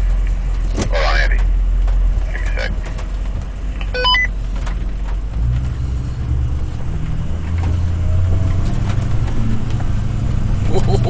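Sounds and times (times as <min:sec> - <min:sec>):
pickup engine running: 0:00.0 - 0:11.0.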